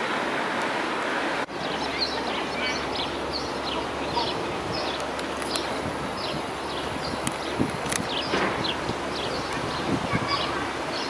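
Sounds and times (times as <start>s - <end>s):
outdoor background noise: 0.0s - 11.0s
birds chirping: 1.5s - 11.0s.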